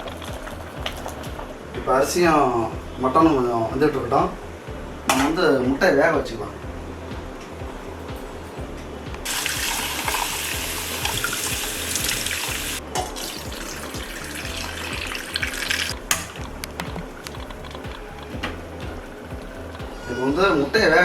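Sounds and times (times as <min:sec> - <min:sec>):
tap water running into a pot: 0:00.0 - 0:01.4, 0:09.2 - 0:18.3.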